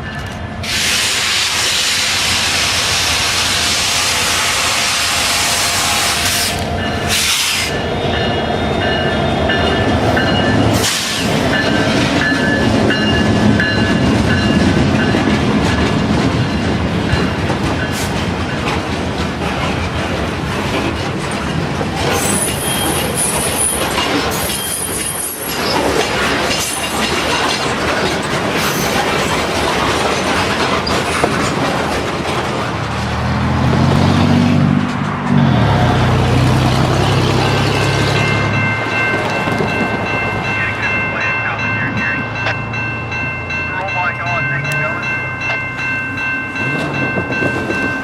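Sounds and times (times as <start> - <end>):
diesel locomotive engine drone: 0.0 - 48.0
train wheels rumbling on rail: 0.0 - 48.0
high wheel flange squeal: 22.1 - 25.8.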